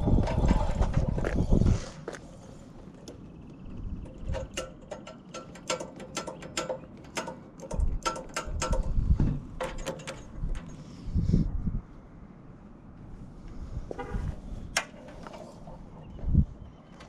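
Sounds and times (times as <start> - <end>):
metallic clicks and rattles: 4.0 - 10.8.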